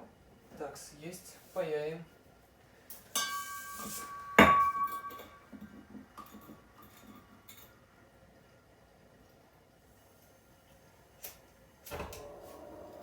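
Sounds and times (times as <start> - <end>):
metallic clink: 3.2 - 5.4.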